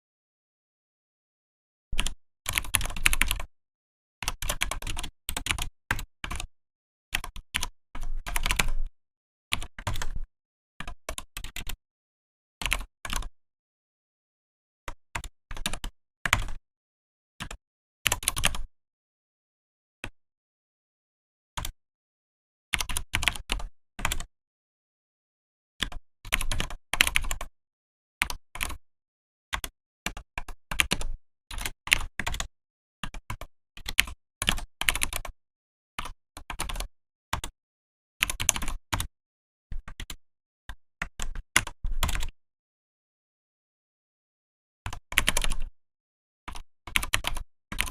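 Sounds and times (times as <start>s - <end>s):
mechanical keyboard typing: 2.0s - 3.4s, 4.2s - 6.5s, 7.2s - 8.8s, 15.2s - 16.6s, 18.1s - 18.7s, 22.8s - 24.3s, 25.8s - 27.5s, 29.5s - 35.3s, 36.0s - 37.5s, 38.2s - 39.1s, 41.1s - 42.3s, 44.9s - 45.7s, 46.5s - 47.9s.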